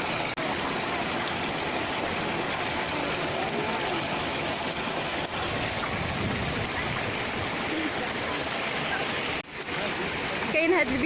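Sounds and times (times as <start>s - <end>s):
spring water gushing: 0.0s - 11.0s.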